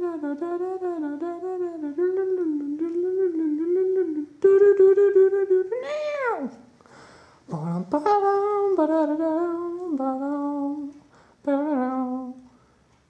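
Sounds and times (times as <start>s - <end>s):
person humming a tune: 0.0s - 6.7s, 7.5s - 12.5s.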